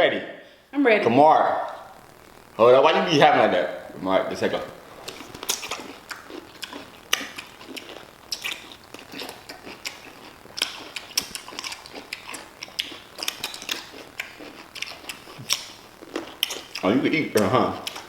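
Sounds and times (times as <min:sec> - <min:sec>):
pickles being crunched: 0:04.6 - 0:18.0.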